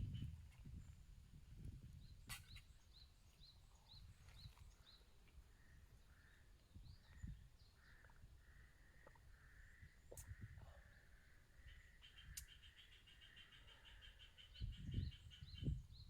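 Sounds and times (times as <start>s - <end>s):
wind rumbling on microphone: 0.0s - 5.0s, 6.7s - 8.4s, 9.8s - 11.0s, 14.4s - 16.0s.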